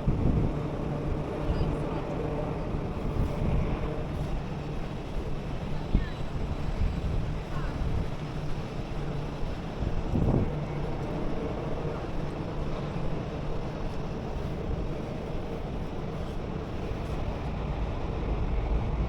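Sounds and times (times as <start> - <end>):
wind on microphone: 0.0 - 1.8, 2.5 - 12.7
outdoor background rumble: 0.0 - 19.0.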